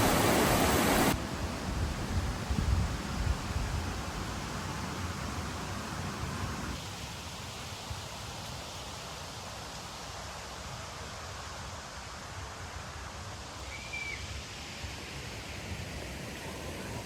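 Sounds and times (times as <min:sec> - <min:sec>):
wind buffeting microphone: 0:00.0 - 0:04.4
steady hiss: 0:00.0 - 0:17.0.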